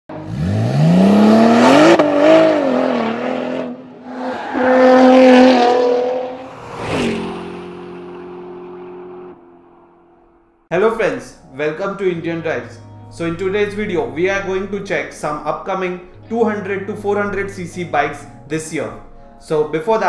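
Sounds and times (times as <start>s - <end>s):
engine revving: 0.1s - 10.4s.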